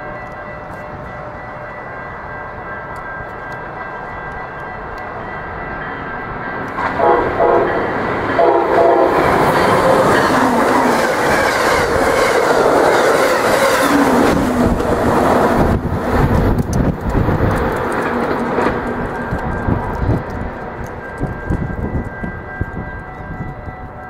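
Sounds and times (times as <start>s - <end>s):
train rushing and wheel clatter: 0.0s - 24.0s
train horn: 6.8s - 14.4s.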